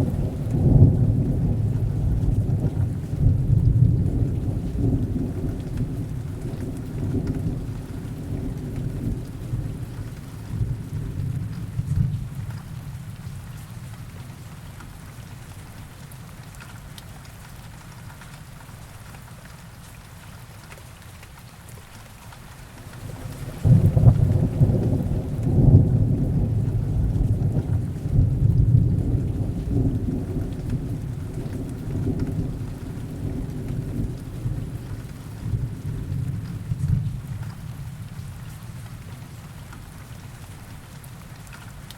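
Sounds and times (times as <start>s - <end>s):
thunder rumble: 0.0s - 12.8s, 22.9s - 38.3s
heavy rain falling: 0.0s - 41.9s.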